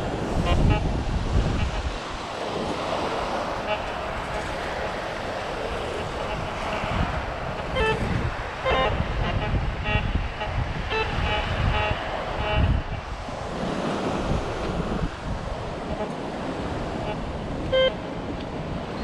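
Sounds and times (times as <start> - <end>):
wind noise on microphone: 0.0 - 19.0
metal detector beeps: 8.6 - 10.1, 17.7 - 18.0.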